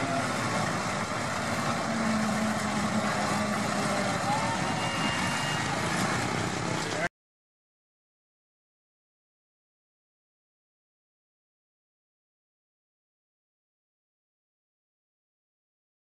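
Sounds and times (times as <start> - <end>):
crowd chatter: 0.0 - 7.1
tractor engines running: 0.0 - 7.1.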